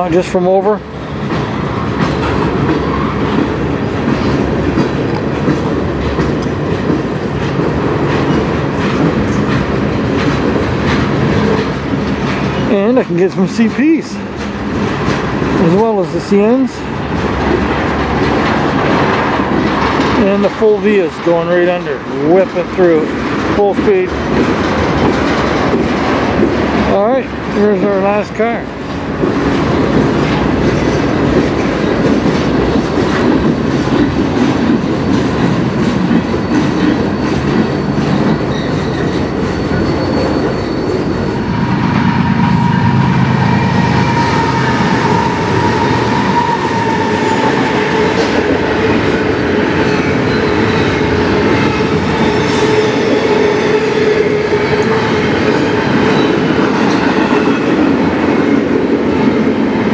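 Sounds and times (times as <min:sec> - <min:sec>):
wheels clacking over rail joints: 0:00.0 - 0:42.1, 0:44.0 - 0:59.9
train rumbling past: 0:00.0 - 0:59.9
high whining tone: 0:39.4 - 0:56.4.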